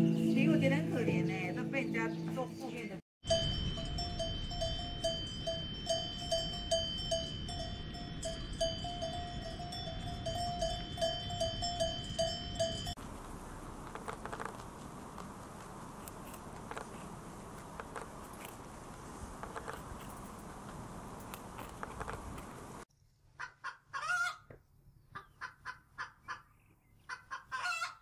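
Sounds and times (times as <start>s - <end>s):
livestock bells clanking: 3.2s - 13.0s.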